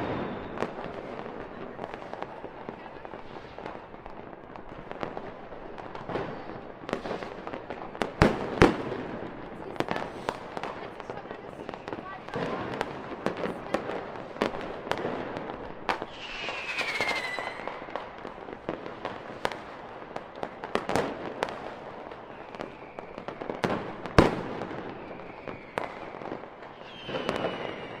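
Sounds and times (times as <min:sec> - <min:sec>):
falling firework whistle: 0:00.0 - 0:00.9, 0:15.9 - 0:18.0, 0:22.2 - 0:23.7, 0:24.8 - 0:28.0
fireworks popping and crackling: 0:00.0 - 0:28.0
sharp firework bangs: 0:11.6 - 0:19.8.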